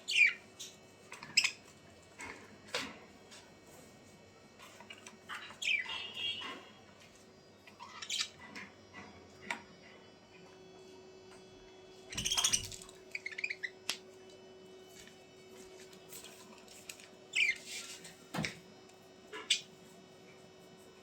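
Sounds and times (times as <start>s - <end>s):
birds chirping and squawking: 0.0s - 3.0s, 4.6s - 6.8s, 7.6s - 9.2s, 12.1s - 14.0s, 17.3s - 17.9s, 19.3s - 19.7s.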